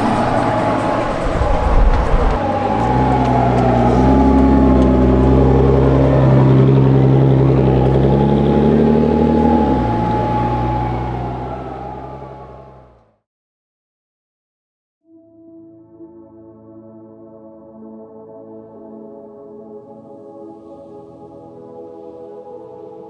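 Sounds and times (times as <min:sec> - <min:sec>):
car engine and exhaust running: 0:00.0 - 0:13.0.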